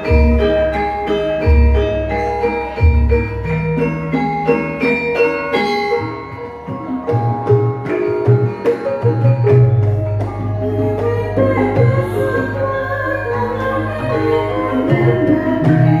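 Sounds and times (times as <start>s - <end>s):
hand drums: 0.0s - 16.0s
metallophones ringing: 0.0s - 16.0s
low sustained tones: 5.8s - 16.0s.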